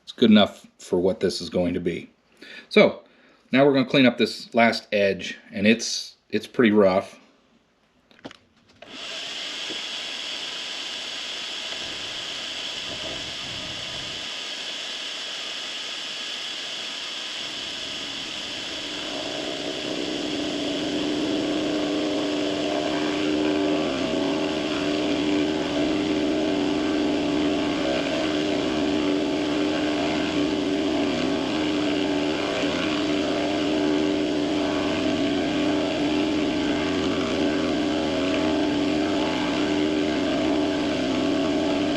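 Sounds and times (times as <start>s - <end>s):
machine cutting aluminum: 17.2s - 41.9s
metalworking machine running: 17.6s - 41.9s.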